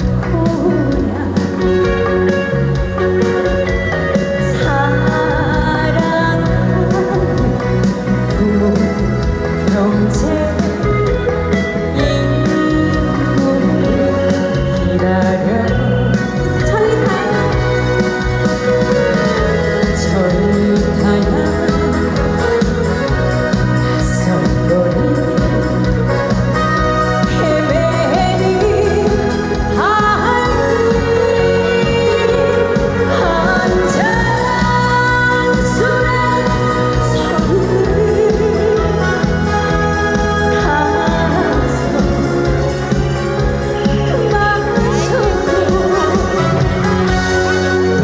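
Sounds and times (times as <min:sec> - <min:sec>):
live band music: 0:00.0 - 0:48.0
person singing: 0:00.0 - 0:48.0.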